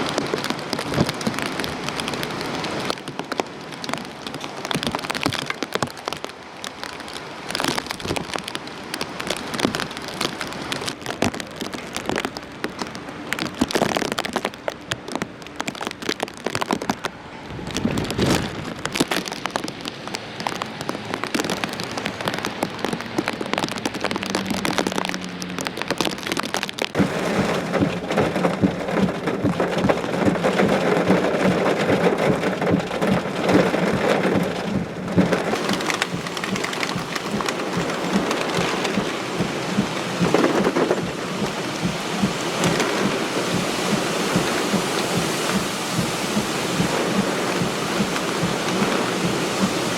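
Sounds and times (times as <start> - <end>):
heavy rain: 0.0 - 49.9.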